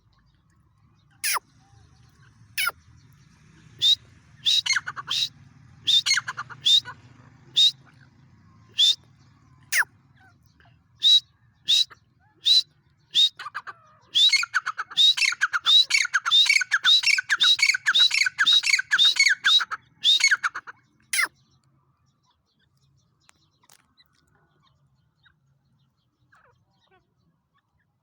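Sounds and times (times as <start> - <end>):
bird squawking: 1.2 - 1.5, 2.6 - 2.8, 3.8 - 5.3, 5.9 - 7.8, 8.7 - 9.0, 9.7 - 9.9, 11.0 - 21.4.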